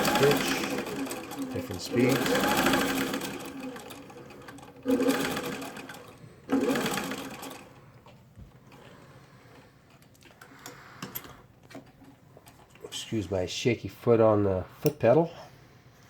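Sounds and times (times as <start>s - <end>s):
sewing machine motor stitching: 0.0s - 7.8s.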